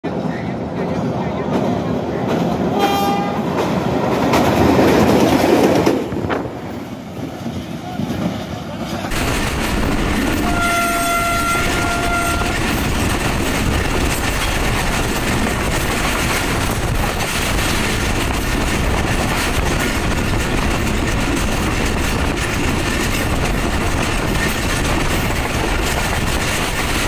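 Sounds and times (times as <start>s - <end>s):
train wheels on rails and wind: 0.1s - 27.0s
train horn: 2.7s - 3.5s, 10.3s - 12.6s.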